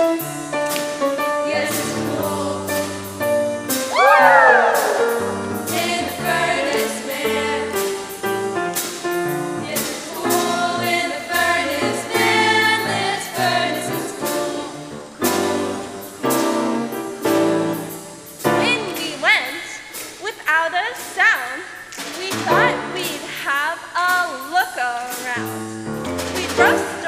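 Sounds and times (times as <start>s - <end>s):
instrumental accompaniment: 0.0s - 19.2s, 21.9s - 23.4s, 25.1s - 27.0s
choir singing gospel song: 1.2s - 19.8s, 22.2s - 23.7s, 26.3s - 27.0s.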